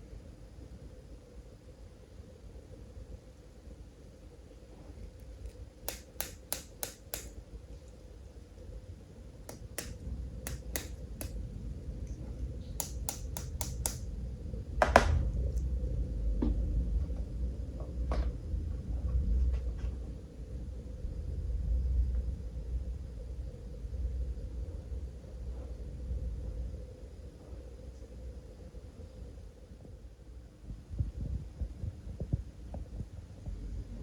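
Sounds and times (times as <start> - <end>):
plastic toys clicking and tapping: 12.8 - 14.0.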